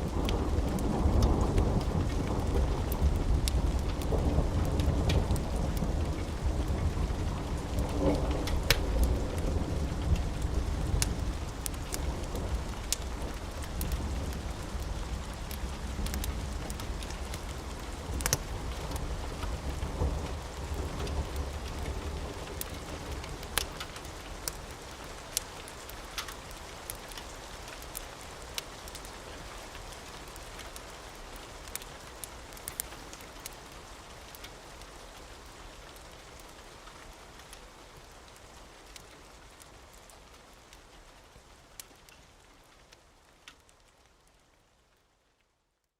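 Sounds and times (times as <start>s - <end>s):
low rumble of thunder: 0.0s - 25.4s
wood fire crackling: 0.0s - 45.1s
steady rain: 0.0s - 45.9s.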